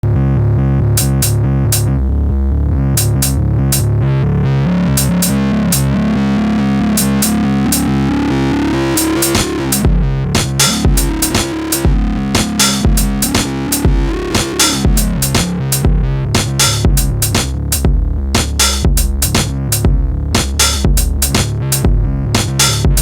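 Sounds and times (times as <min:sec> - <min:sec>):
synth bass pattern: 0:00.0 - 0:23.0
deep kick drums: 0:01.0 - 0:01.9, 0:03.0 - 0:04.0, 0:05.0 - 0:05.9, 0:09.0 - 0:23.0
sharp percussion hits: 0:01.0 - 0:01.9, 0:03.0 - 0:03.4, 0:05.0 - 0:05.8, 0:07.0 - 0:07.8, 0:09.0 - 0:23.0.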